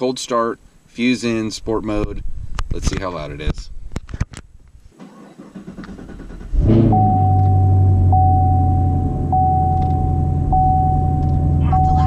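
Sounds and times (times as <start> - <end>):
car engine starting: 4.9 - 12.0.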